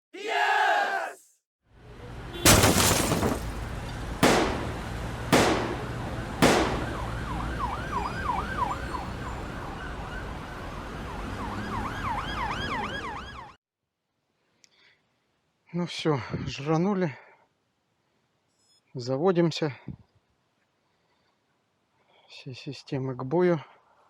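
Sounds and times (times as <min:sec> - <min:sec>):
heavy hits: 0:02.5 - 0:07.2
warbling siren-like tone: 0:06.8 - 0:13.5.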